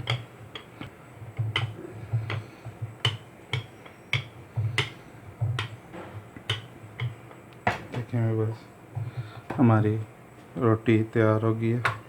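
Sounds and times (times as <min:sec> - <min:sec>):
rolling pin clicking: 0:00.0 - 0:08.1
rolling pin rolling dough: 0:00.0 - 0:10.6.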